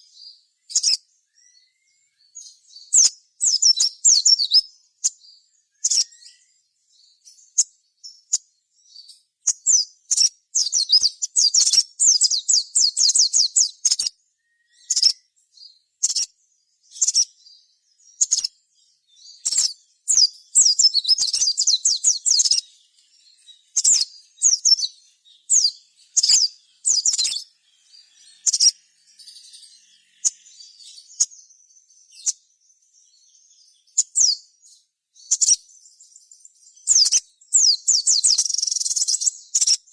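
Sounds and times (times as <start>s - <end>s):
sunbird high chirps: 0.0s - 39.9s
sunbird rapid trilling: 23.6s - 31.3s.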